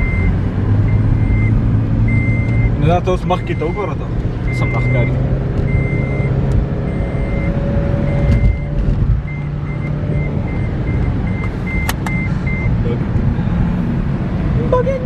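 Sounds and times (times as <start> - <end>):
parking sensor beeps: 0.0 - 12.8
car engine hum: 0.0 - 15.0
sharp clicks: 11.4 - 12.2.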